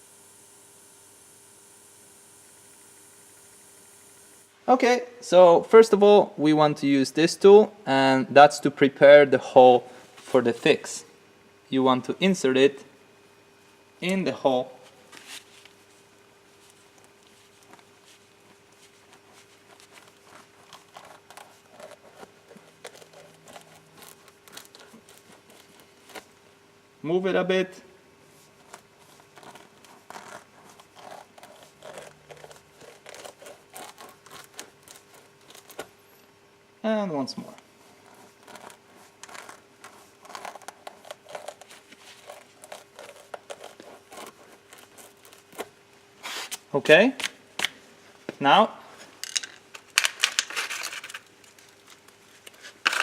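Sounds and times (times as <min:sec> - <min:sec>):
faint steady hum: 0:00.0 - 0:53.0
rubber rasping and scraping: 0:17.4 - 0:26.3, 0:28.4 - 0:35.8, 0:37.9 - 0:45.6.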